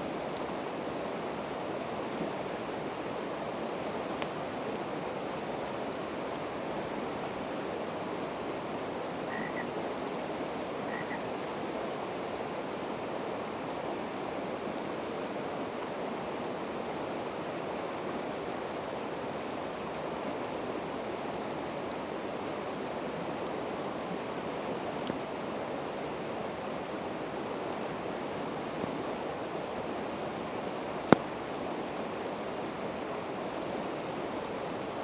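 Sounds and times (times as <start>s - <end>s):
campfire crackling: 24.8s - 35.0s.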